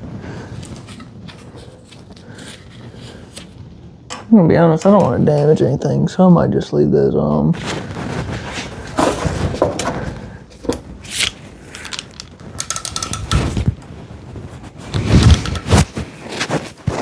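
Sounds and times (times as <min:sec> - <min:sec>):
hand tools clanking on metal: 0:04.1 - 0:05.8, 0:09.0 - 0:13.7.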